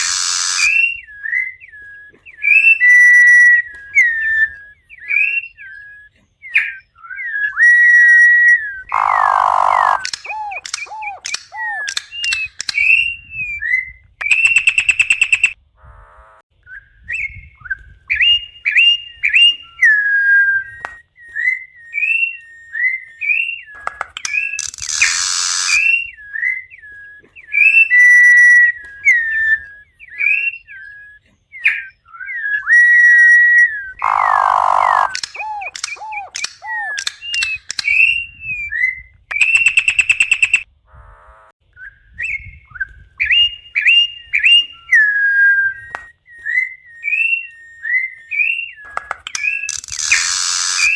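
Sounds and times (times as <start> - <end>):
bird whistling song: 0.0 - 15.6, 16.6 - 40.7, 41.7 - 50.9
harsh raspy bird notes: 0.0 - 16.4, 22.0 - 41.5, 47.0 - 50.9.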